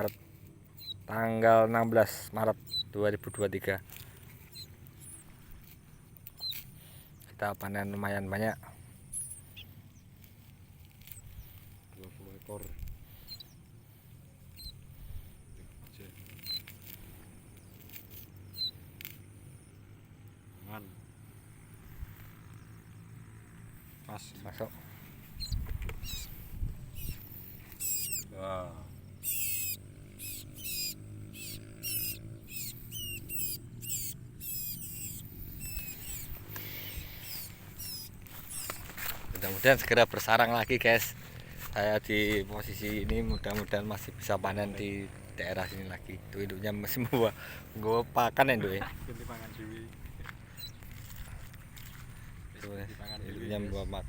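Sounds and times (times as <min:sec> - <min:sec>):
small birds cheeping: 0:00.0 - 0:54.0
chicks chirping: 0:25.2 - 0:28.3, 0:28.9 - 0:48.0, 0:48.7 - 0:52.2
handling clicks and rustles: 0:35.3 - 0:45.4.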